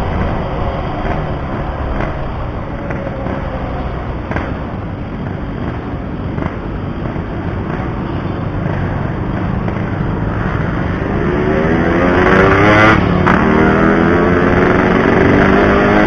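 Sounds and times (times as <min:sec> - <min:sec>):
wind noise: 0:00.0 - 0:16.0.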